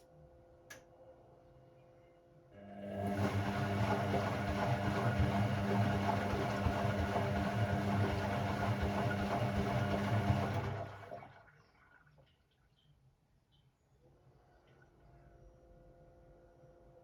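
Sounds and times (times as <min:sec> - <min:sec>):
washing machine motor hum: 0:02.6 - 0:11.6.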